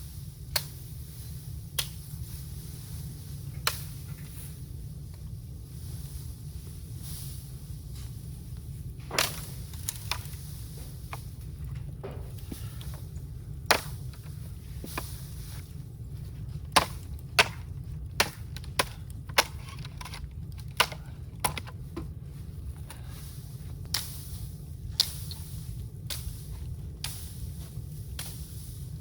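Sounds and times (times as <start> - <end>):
steady low rumble: 0.0 - 29.0
bamboo cracking sharply: 9.1 - 10.4, 13.7 - 14.3, 16.7 - 17.6, 18.2 - 21.7.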